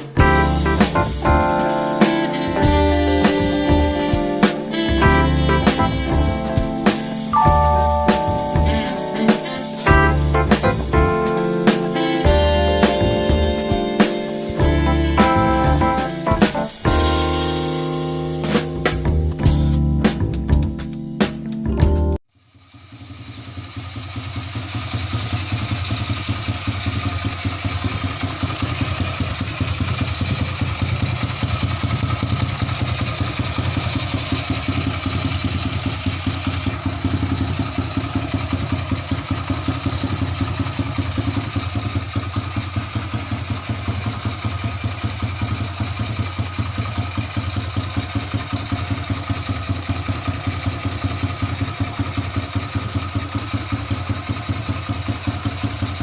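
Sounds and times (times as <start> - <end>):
motorcycle engine idling: 0.0 - 20.6, 22.4 - 56.0.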